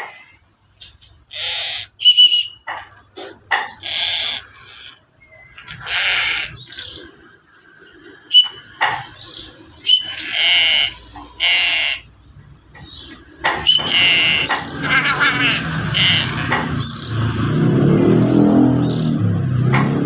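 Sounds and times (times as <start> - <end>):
young crow rasping calls: 1.3 - 2.2, 3.6 - 7.0, 10.0 - 12.1, 13.7 - 16.9
high whistled chirps: 2.0 - 2.6, 8.3 - 10.2.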